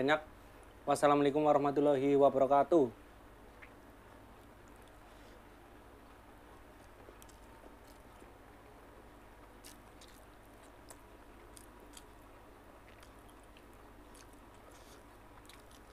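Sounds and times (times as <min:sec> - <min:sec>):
low steady hum: 0:00.0 - 0:15.9
faint chewing and mouth clicks: 0:03.5 - 0:15.9.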